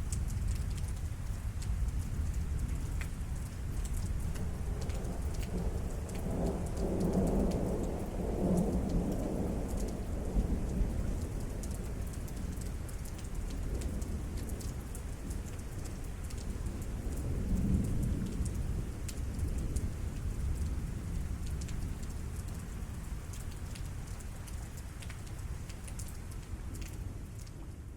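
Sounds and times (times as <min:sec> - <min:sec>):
steady rain: 0:00.0 - 0:27.9
water drips: 0:17.8 - 0:27.9.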